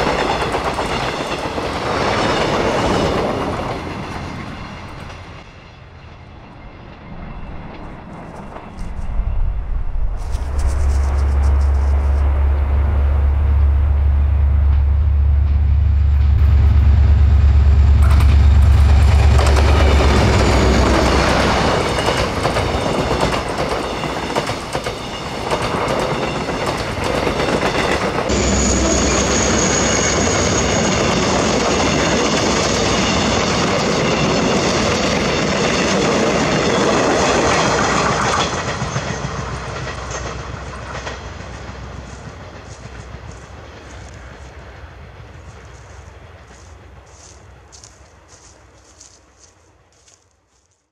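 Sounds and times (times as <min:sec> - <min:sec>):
diesel locomotive engine hum: 0:00.0 - 0:50.9
thin high whine: 0:06.4 - 0:23.1, 0:28.3 - 0:34.7
train wheels clacking over rail joints: 0:18.0 - 0:47.2.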